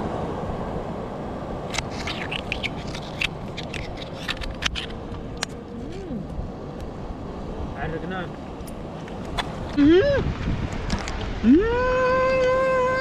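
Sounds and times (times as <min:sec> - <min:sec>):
sharp clicks and scrapes: 0:01.7 - 0:05.6.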